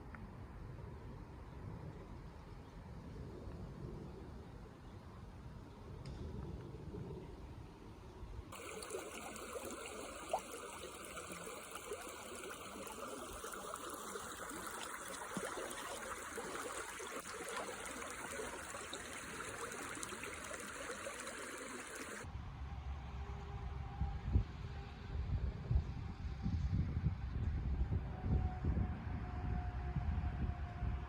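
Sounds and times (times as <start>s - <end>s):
water splashing trickle: 8.5s - 22.3s.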